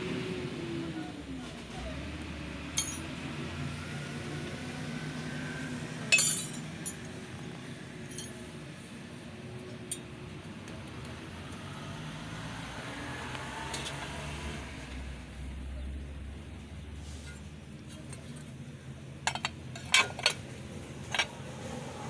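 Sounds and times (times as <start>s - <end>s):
sharp metallic clinks: 2.8s - 3.1s, 6.1s - 7.1s, 8.1s - 8.4s.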